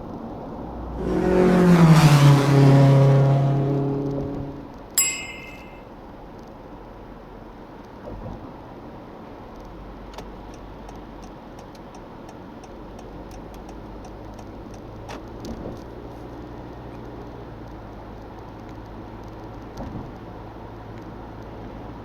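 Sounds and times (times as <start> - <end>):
car engine and road noise drone: 0.0 - 5.8
light ticks and clicks: 9.6 - 15.6.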